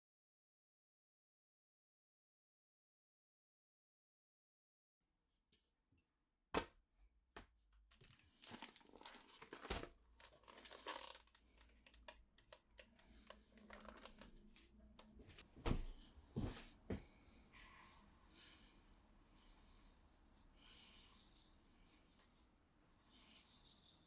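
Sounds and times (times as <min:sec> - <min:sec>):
packaging crinkling and tearing: 0:07.9 - 0:14.5.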